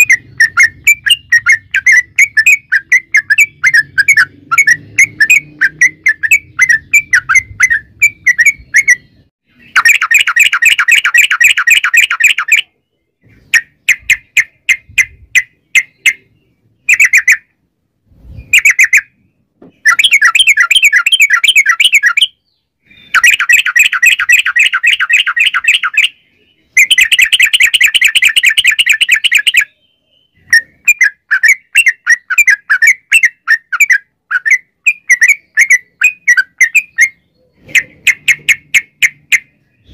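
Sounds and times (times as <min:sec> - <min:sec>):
bird chirping notes: 0:00.0 - 0:39.9
bird rolling chatter song: 0:00.0 - 0:39.9.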